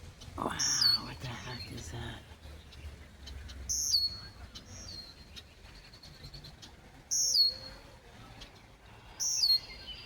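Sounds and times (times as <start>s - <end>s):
blackbird buzzy whistling call: 3.7s - 7.8s, 9.1s - 10.0s.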